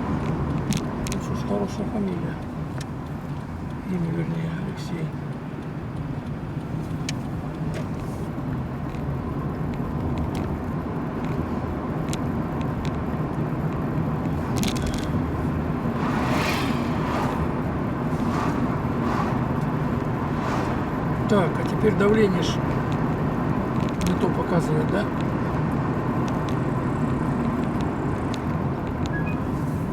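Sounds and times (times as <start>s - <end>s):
car engine and tyre hum: 0.0s - 29.9s
brief rush of noise: 16.0s - 17.5s.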